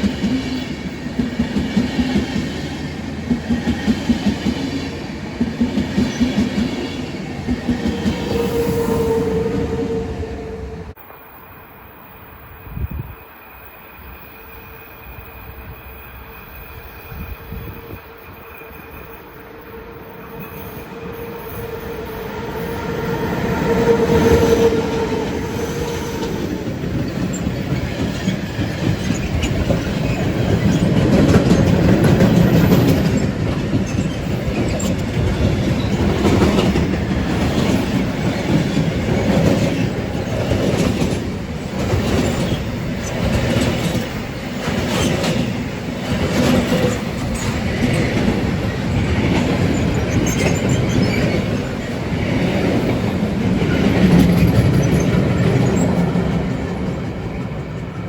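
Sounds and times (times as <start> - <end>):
locomotive steady tone: 0.0 - 58.0
wheels clicking over rail joints: 26.2 - 58.0.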